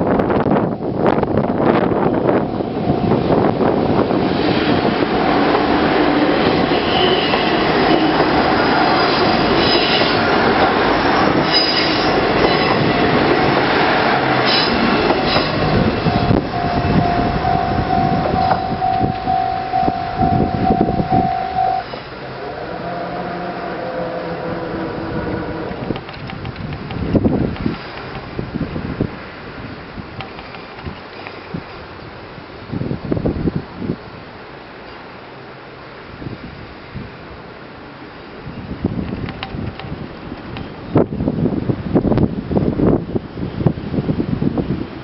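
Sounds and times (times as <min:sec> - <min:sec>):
train wheels rumbling on rail: 0:00.0 - 0:35.2, 0:38.3 - 0:45.0
wind: 0:00.0 - 0:45.0
high wheel squeals: 0:11.2 - 0:13.6, 0:14.4 - 0:26.0.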